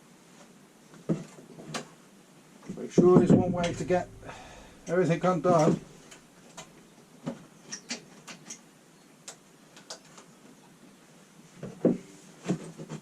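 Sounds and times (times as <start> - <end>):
louder knock: 3.0 - 4.9.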